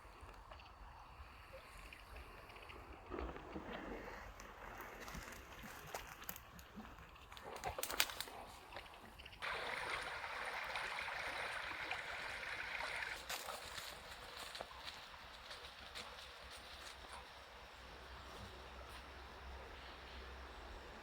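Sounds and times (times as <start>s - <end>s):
water pouring: 9.4s - 14.2s.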